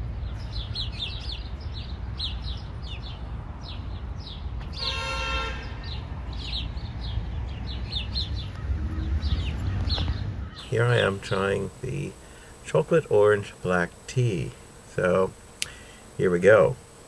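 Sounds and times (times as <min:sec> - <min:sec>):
small birds chirping: 0:00.0 - 0:17.0
brief honk: 0:04.8 - 0:05.8
steady low rumble: 0:06.0 - 0:15.4.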